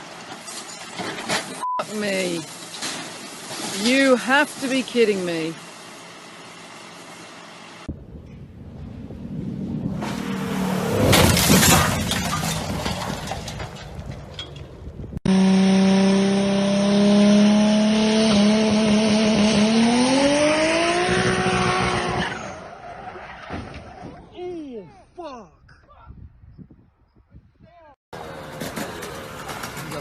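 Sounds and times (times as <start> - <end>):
car engine accelerating: 7.8 - 12.7, 15.3 - 22.5.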